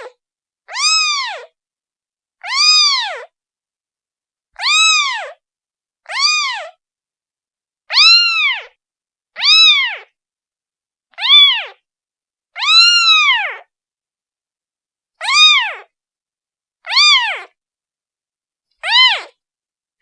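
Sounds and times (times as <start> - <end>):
kitten meowing: 0.0 - 1.5, 2.4 - 3.3, 4.6 - 5.4, 6.0 - 6.8, 7.9 - 8.8, 9.4 - 10.2, 11.1 - 11.8, 12.6 - 13.7, 15.2 - 15.9, 16.8 - 17.6, 18.8 - 19.4.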